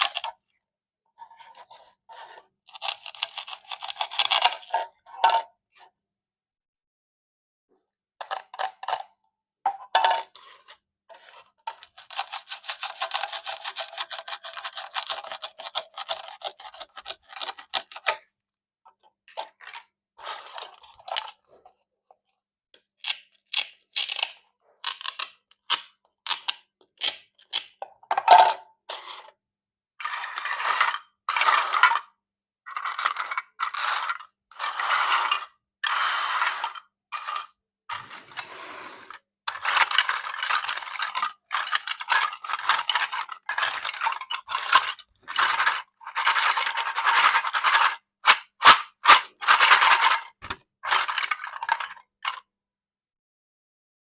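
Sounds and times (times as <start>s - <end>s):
knife cutting plastic toy: 1.4s - 4.7s, 10.4s - 18.3s, 22.8s - 27.8s.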